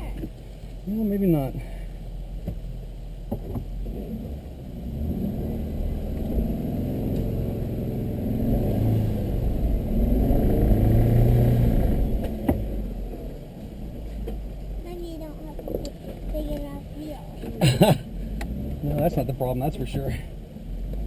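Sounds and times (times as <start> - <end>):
vehicle engine revving under load: 3.5 - 13.3, 15.6 - 21.0.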